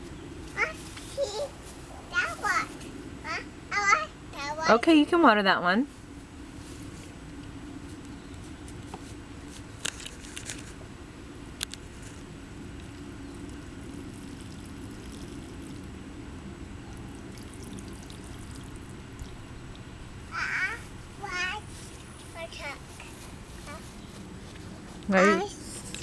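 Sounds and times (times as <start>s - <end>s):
water pouring from watering can: 13.3s - 16.0s, 17.0s - 19.9s.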